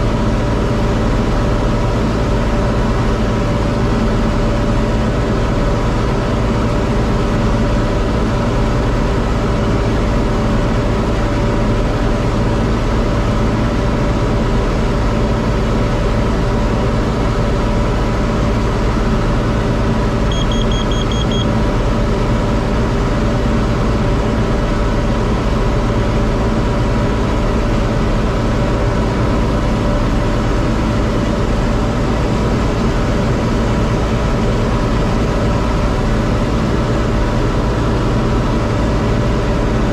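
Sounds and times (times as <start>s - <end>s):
round baler running: 0.0s - 39.9s
tractor diesel engine running: 0.0s - 39.9s
high beeps: 20.3s - 21.5s.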